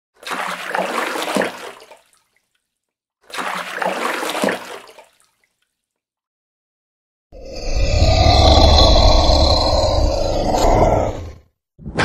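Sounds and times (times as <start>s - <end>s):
water splashing and sloshing: 0.2s - 6.0s.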